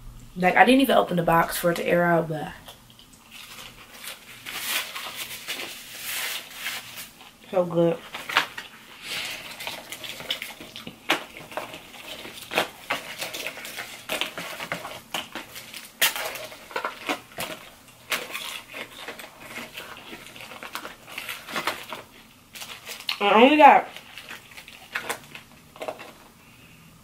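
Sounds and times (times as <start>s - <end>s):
chewing crunchy fried food: 2.6s - 5.4s, 8.2s - 23.2s, 23.9s - 26.2s.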